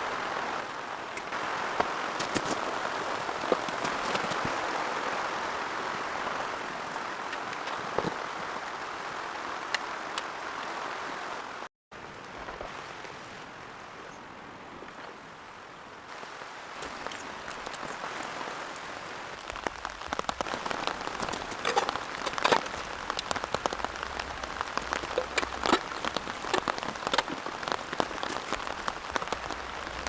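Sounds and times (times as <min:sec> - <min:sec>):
steady rainfall: 0:00.0 - 0:30.0
sharp raindrop hits: 0:16.7 - 0:30.0.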